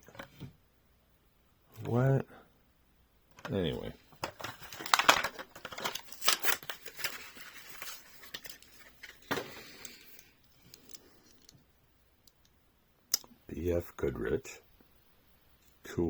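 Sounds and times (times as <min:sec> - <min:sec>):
plastic blister crackling: 0:04.2 - 0:10.1
cardboard ripping: 0:04.7 - 0:08.4.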